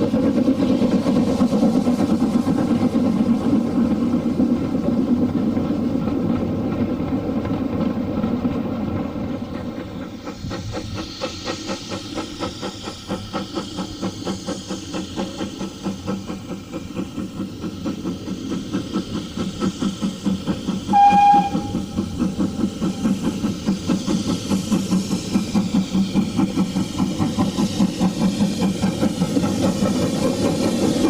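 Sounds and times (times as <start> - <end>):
steam train rhythmic chuffing: 0.0 - 31.0
train whistle toot: 20.8 - 23.2.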